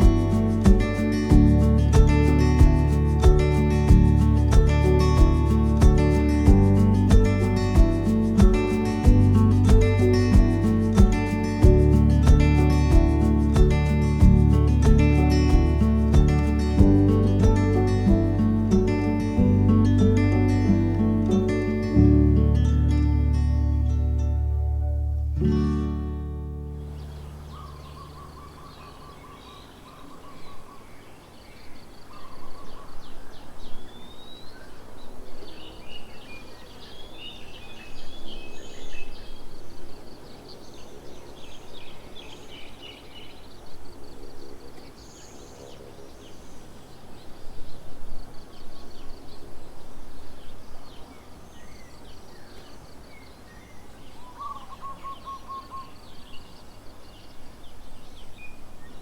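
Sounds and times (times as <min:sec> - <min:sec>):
birds chirping and trilling: 0:26.8 - 0:59.0.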